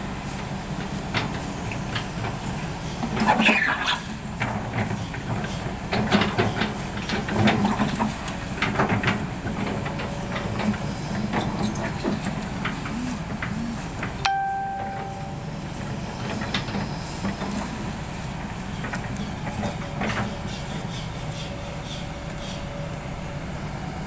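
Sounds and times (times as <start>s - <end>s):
excavator diesel engine running: 0.0s - 24.0s
steady high tone: 13.0s - 15.6s.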